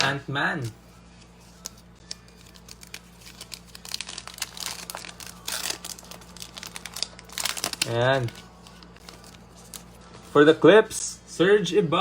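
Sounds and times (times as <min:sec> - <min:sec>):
plastic wrapper crinkling and tearing: 0:01.6 - 0:10.0.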